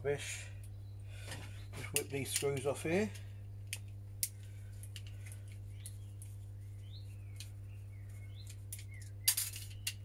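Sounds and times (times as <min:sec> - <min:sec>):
small birds chirping: 0:00.0 - 0:10.0
steady low hum: 0:00.0 - 0:10.0
clicks of small parts handled: 0:01.9 - 0:06.4, 0:08.4 - 0:10.0.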